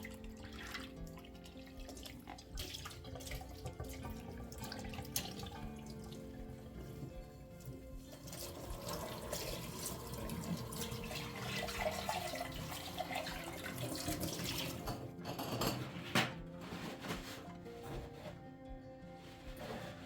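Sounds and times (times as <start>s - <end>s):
water running from a tap: 0.0s - 15.1s.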